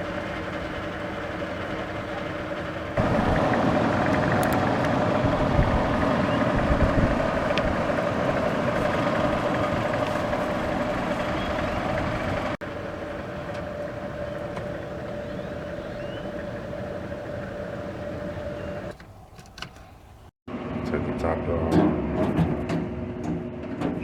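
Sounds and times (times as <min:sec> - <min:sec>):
machinery humming: 0:00.0 - 0:19.0.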